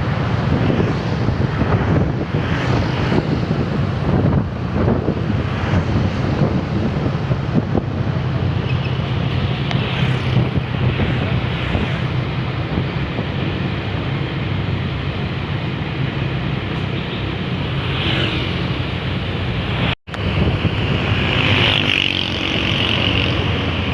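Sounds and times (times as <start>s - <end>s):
road noise: 0.0s - 23.9s
wind on microphone: 0.0s - 23.9s
bus engine droning: 3.4s - 17.8s.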